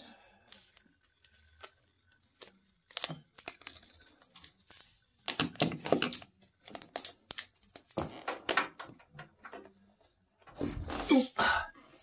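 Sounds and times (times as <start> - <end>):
plastic rustling: 0.5 - 8.1
cable clicks and knocks: 5.3 - 9.8.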